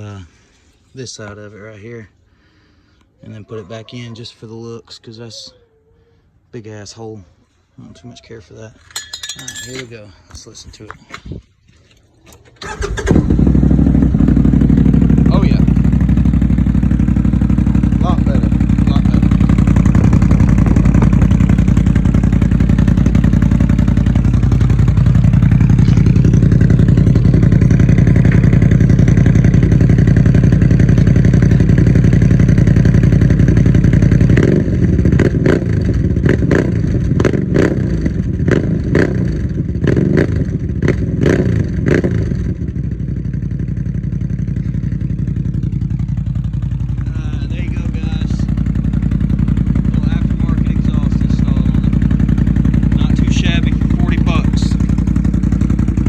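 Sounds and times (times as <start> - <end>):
atv engine revving: 12.6 - 56.0.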